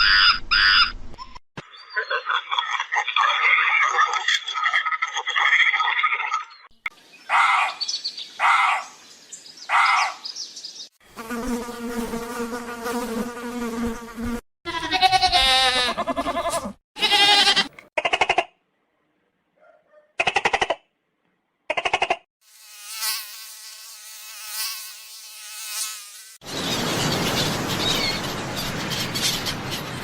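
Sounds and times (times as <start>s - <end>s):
squeaky animal calls: 0.0s - 2.5s, 14.7s - 18.4s.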